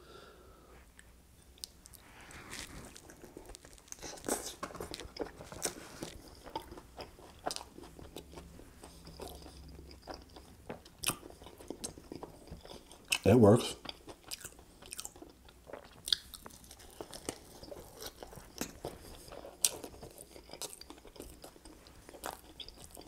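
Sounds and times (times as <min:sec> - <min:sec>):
biting and chewing fried chicken: 0:02.5 - 0:23.0.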